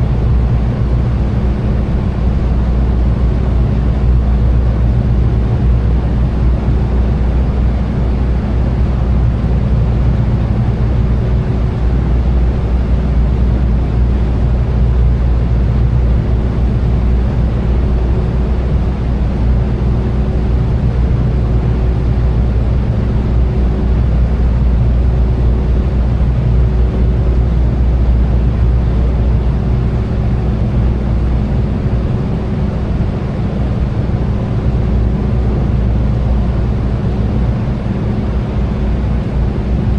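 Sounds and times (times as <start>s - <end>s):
boat engine droning: 0.0s - 39.9s.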